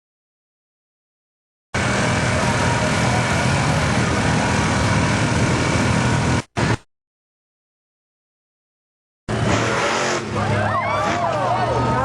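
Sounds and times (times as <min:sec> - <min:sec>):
vehicle engine running hard: 0:01.8 - 0:06.8, 0:09.3 - 0:12.0.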